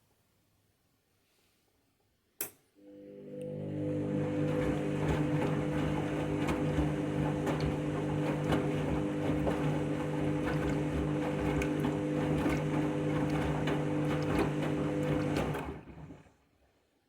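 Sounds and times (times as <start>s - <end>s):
washing machine spinning: 2.9s - 16.4s.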